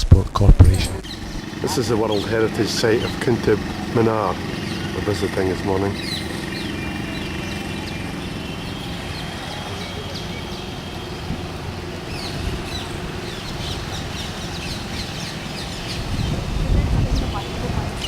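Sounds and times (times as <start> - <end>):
faint voices: 0.0 - 12.1, 16.2 - 18.0
birds chirping: 0.0 - 18.0
traffic hum: 0.0 - 18.0.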